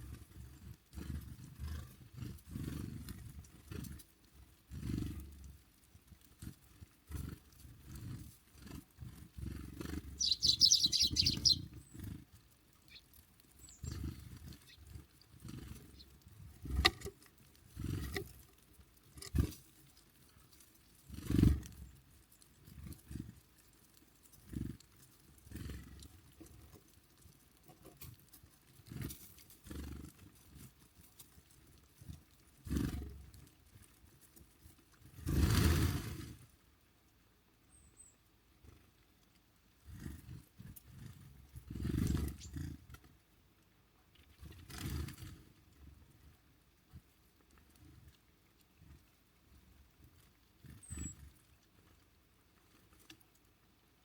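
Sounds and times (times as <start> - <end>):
birds pecking on a feeder: 0.0 - 54.0
short high bird call: 10.2 - 11.6.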